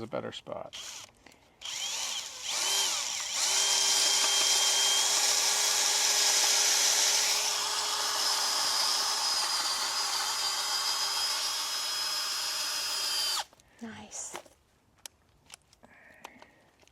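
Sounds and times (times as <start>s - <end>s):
power drill driving screw: 0.8s - 13.5s.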